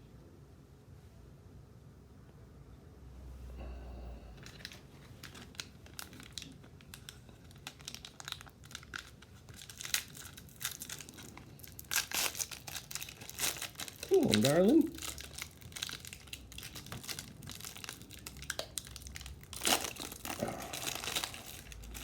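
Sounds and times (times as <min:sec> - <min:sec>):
wrapper tearing and crinkling: 0:04.4 - 0:22.0.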